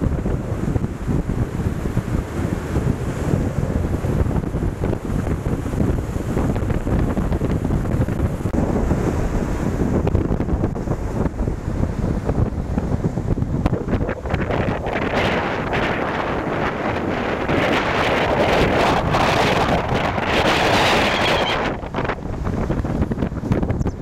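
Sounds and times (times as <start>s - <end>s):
waves breaking on shore: 0.0s - 23.8s
wind buffeting microphone: 0.0s - 24.0s.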